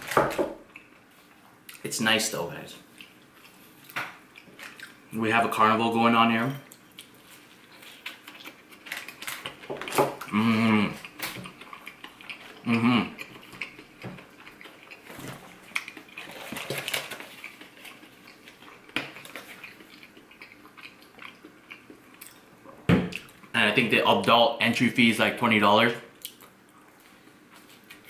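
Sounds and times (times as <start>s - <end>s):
crunching and chewing: 2.8s - 5.1s, 6.6s - 23.6s, 26.2s - 28.0s
person humming mmm: 10.2s - 11.1s, 12.6s - 13.2s.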